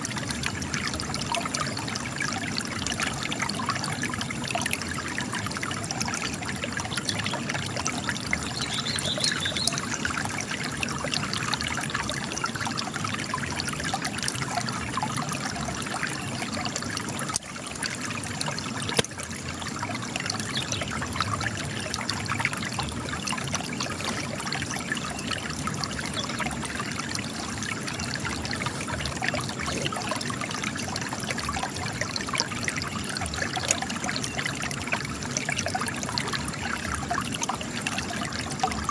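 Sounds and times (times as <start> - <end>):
spring water trickling over rock: 0.0 - 38.9.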